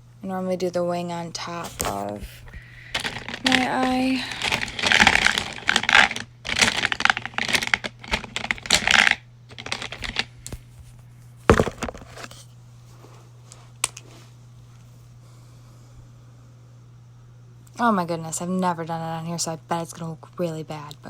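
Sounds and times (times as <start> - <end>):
low electrical hum: 0.0 - 21.0
plastic items clicking and clattering: 1.6 - 10.6, 11.5 - 12.4.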